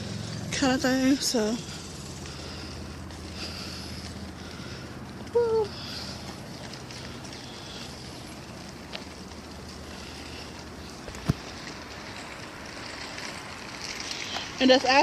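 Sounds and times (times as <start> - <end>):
outdoor background noise: 0.0 - 15.0
woman saying woo: 5.4 - 5.7.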